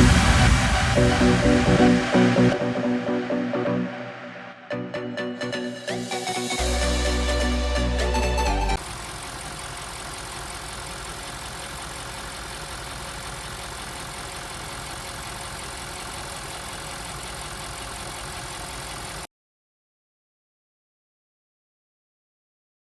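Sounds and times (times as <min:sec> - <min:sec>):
car engine idling: 0:06.5 - 0:19.3.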